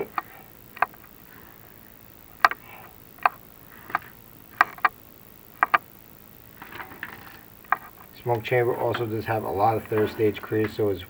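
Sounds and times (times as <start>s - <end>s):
camera rods knocking on clay flue: 5.6s - 5.8s.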